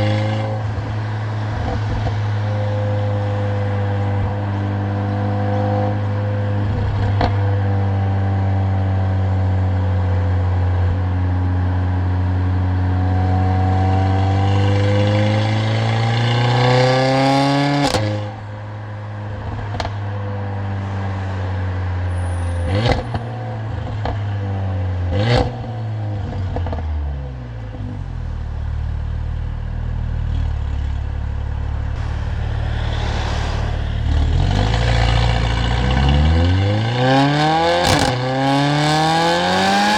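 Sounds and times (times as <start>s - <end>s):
car engine and loud exhaust: 0.0s - 39.9s
sharp exhaust cracks: 28.2s - 38.2s.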